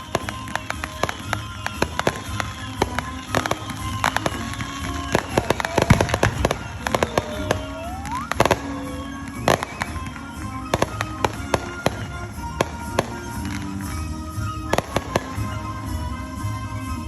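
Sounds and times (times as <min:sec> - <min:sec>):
firework rising whistle: 0:00.0 - 0:17.0
fireworks bangs and crackles: 0:00.0 - 0:17.0.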